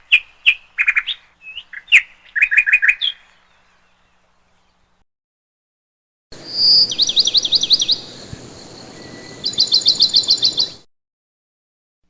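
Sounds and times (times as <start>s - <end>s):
songbird chirping: 0.0s - 5.0s, 6.4s - 10.9s.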